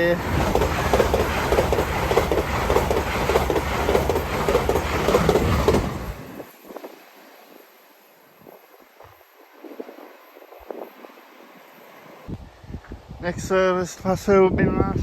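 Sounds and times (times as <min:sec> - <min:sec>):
train wheels clattering over rail joints: 0:00.2 - 0:06.5.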